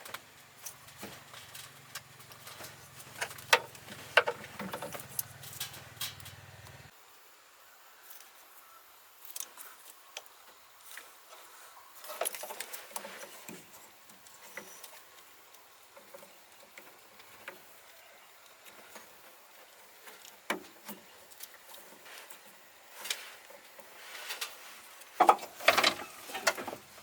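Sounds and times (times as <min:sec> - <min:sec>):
tools and metal parts clicking: 0:01.5 - 0:06.8, 0:25.2 - 0:26.8.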